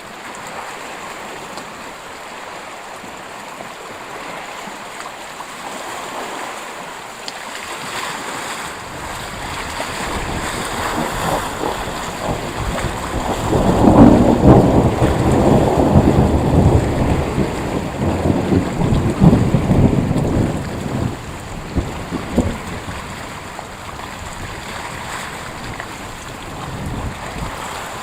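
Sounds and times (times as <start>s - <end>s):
wind buffeting microphone: 8.2s - 28.0s
thunder rumble: 8.8s - 28.0s.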